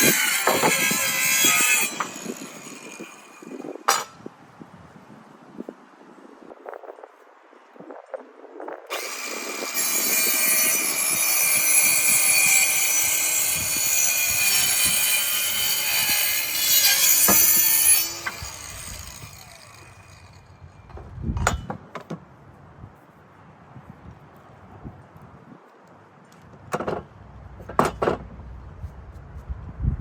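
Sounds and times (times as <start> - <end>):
circular saw cutting wood: 0.0 - 4.0, 8.9 - 20.9.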